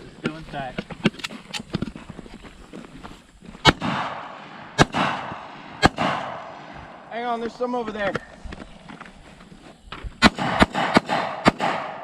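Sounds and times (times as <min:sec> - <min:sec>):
rifle shots with echo: 0:03.6 - 0:07.1, 0:10.2 - 0:12.0.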